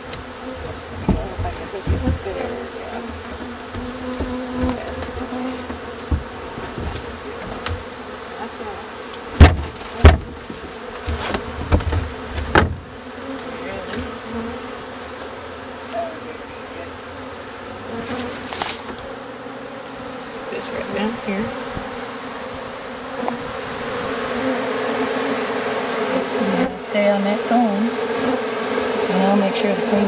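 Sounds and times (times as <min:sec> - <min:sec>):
bee swarm buzzing: 0:00.0 - 0:30.0
sharp knocks: 0:03.2 - 0:07.9, 0:09.4 - 0:12.9.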